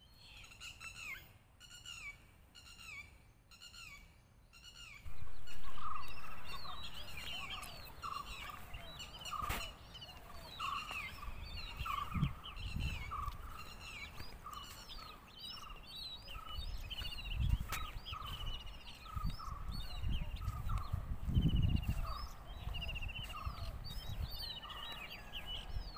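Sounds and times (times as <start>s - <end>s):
birds chirping and trilling: 0.0s - 25.9s
bird repeating low note: 5.0s - 9.2s
wind rumble on microphone: 5.0s - 25.9s.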